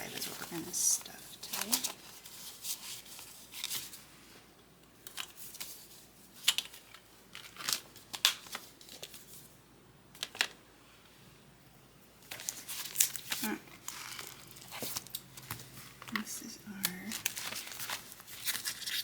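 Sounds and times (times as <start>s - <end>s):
banknotes rustling: 0.0s - 4.0s, 12.3s - 19.0s.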